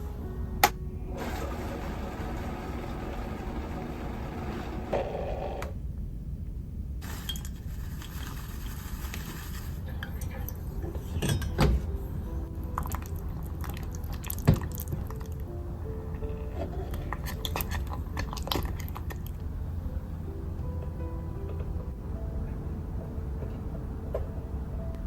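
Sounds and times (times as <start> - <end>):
background music: 0.0 - 5.7, 9.8 - 25.0
dishes and cutlery clinking: 9.9 - 12.1.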